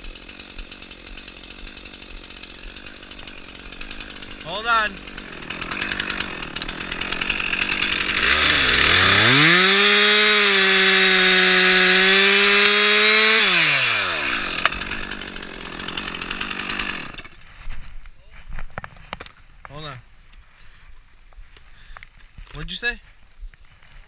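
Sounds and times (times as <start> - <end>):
chainsaw revving: 0.0 - 17.4.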